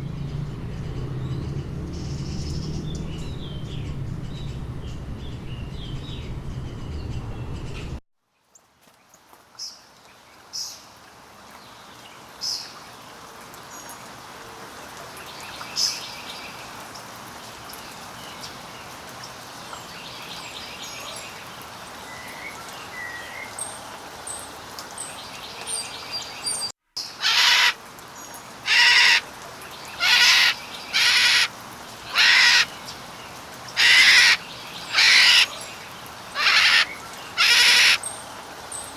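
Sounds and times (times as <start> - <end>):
bird chirps and trills: 0.0 - 8.0, 29.9 - 31.5, 32.1 - 32.8, 33.8 - 35.7, 36.4 - 38.2
harsh bird call: 27.2 - 27.8, 28.7 - 29.3, 30.0 - 31.5, 32.1 - 32.8, 33.8 - 35.6, 36.4 - 38.0.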